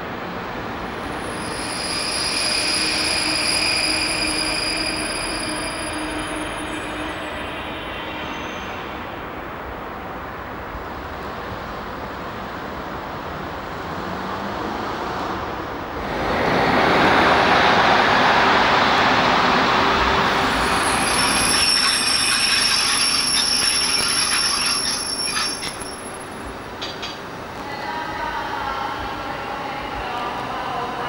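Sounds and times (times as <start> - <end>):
train wheels rumbling on track: 0.0 - 27.7
high wheel squeal: 0.9 - 9.3, 20.2 - 27.2.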